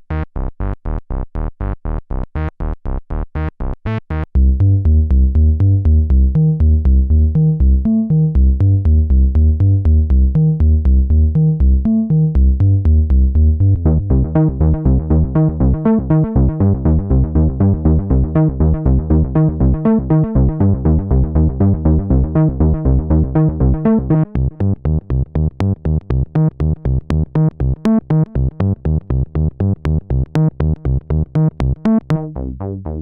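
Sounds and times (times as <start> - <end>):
synthesizer playing repeating notes: 13.8 - 33.0.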